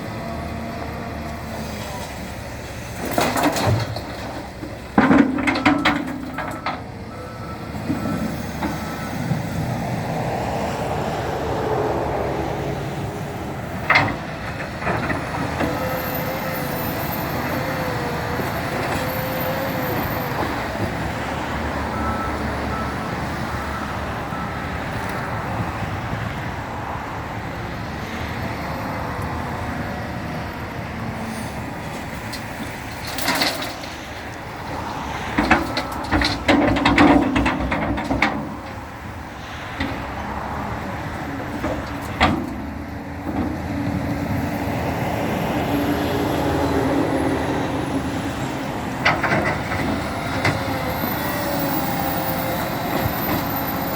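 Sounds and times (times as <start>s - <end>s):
tractor engine running: 0.0s - 53.9s
sharp knocks and clatter: 35.3s - 38.8s.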